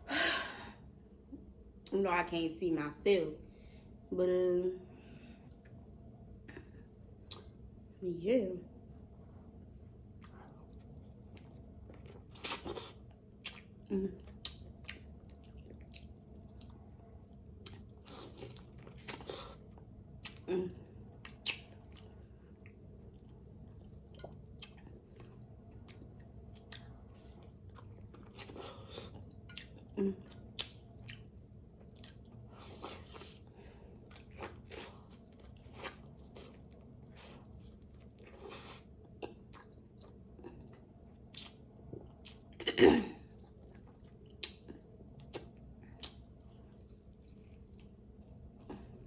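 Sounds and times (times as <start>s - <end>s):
chewing and crunching: 10.1s - 20.5s, 21.1s - 49.0s.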